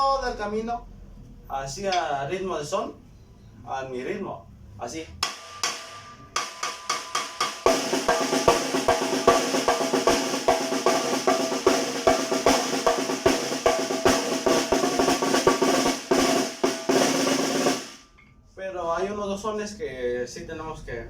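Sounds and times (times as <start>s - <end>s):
snare drum rolls and hits: 5.2s - 18.0s.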